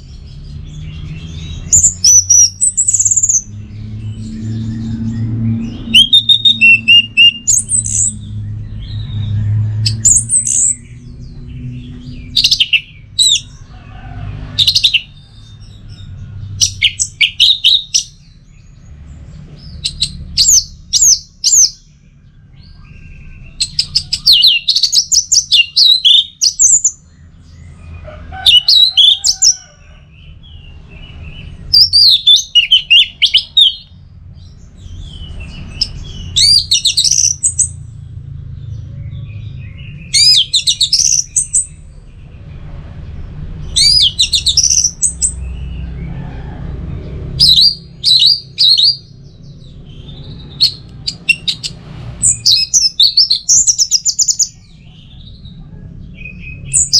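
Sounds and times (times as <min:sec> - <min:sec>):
thrush singing whistled phrases: 0:05.8 - 0:08.2.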